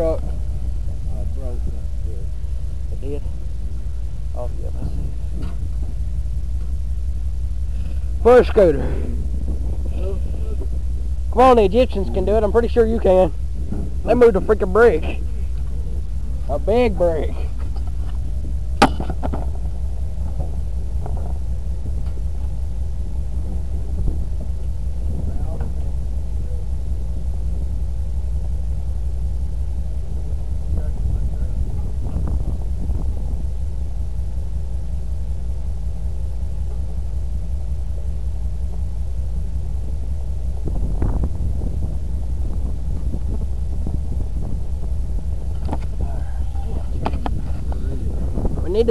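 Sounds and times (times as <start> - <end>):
engine idling: 0.0 - 48.9.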